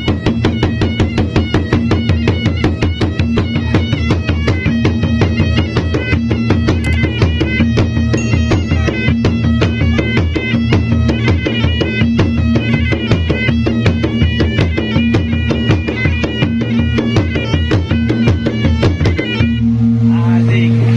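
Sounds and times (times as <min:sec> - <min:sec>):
drums beating fast rhythm: 0:00.0 - 0:20.9
reedy wind instrument melody: 0:00.0 - 0:20.9
steady drone: 0:00.0 - 0:20.9.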